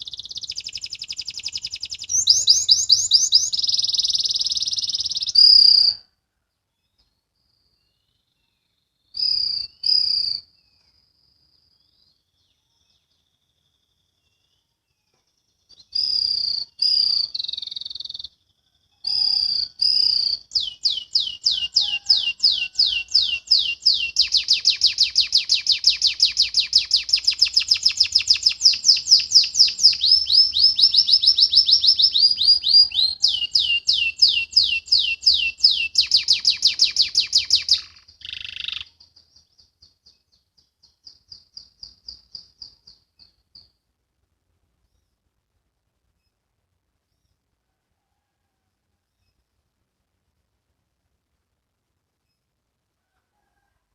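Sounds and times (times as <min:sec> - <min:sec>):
canary singing trills: 0:00.0 - 0:06.0, 0:07.6 - 0:14.8, 0:15.5 - 0:43.8.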